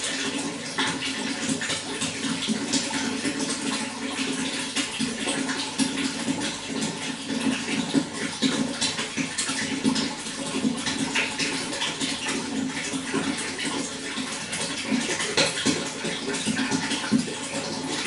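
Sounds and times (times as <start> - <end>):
running water splashing: 0.0 - 18.0.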